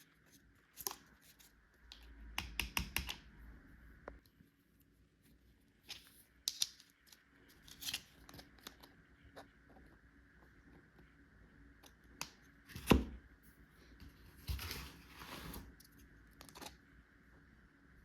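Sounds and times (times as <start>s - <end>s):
rustling scrape: 14.3s - 15.8s.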